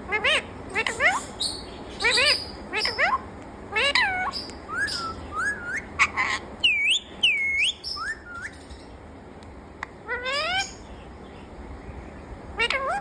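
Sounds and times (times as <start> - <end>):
parrot whistling: 0.1 - 3.2, 3.8 - 8.7.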